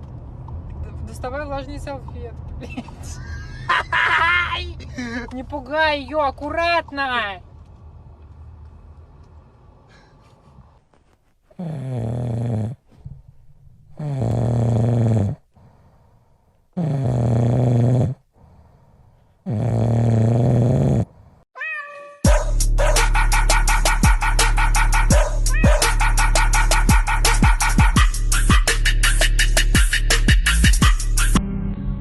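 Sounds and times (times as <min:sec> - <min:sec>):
electronic dance music: 0:22.3 - 0:31.4
animal low drawn-out calls: 0:22.8 - 0:28.0.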